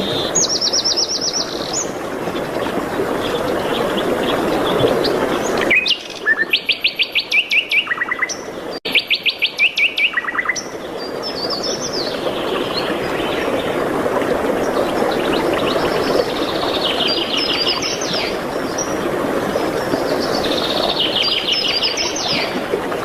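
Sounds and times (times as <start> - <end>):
songbird singing fast notes: 5.5 - 10.7.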